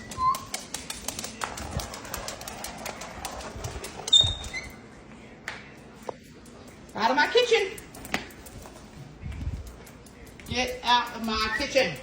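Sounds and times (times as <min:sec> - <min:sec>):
parrot clicking and tapping: 0:00.0 - 0:04.2.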